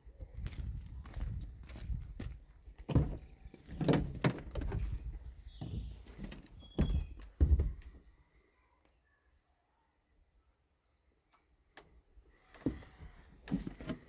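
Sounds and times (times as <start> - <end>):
sharp knocks and thuds: 6.8 - 7.9.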